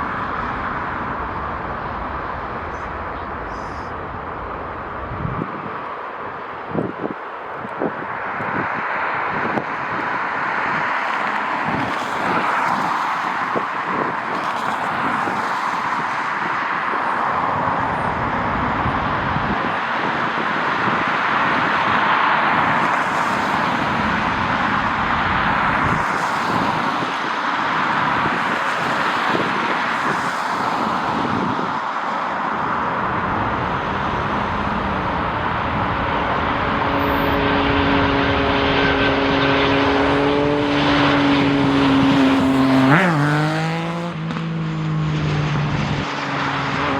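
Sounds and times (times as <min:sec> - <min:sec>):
aircraft engines humming: 0:00.0 - 0:08.6, 0:21.8 - 0:46.9
wind buffeting microphone: 0:00.0 - 0:44.1
steady rushing airport noise: 0:00.0 - 0:46.9.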